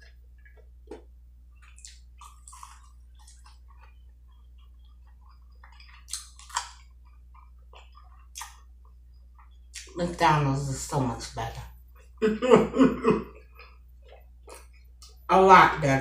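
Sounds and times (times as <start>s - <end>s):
wet mouth clicks and smacks: 0.0s - 8.7s
chewing crispy food: 0.0s - 10.0s, 13.3s - 15.2s
low steady hum: 0.0s - 16.0s.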